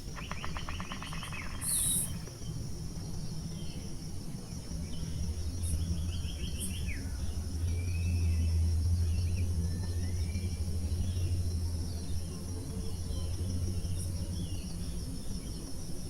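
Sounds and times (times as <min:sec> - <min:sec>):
high insect chirps: 0:00.0 - 0:16.0
low background hum: 0:00.0 - 0:16.0
bird calling in rapid notes: 0:00.1 - 0:02.2.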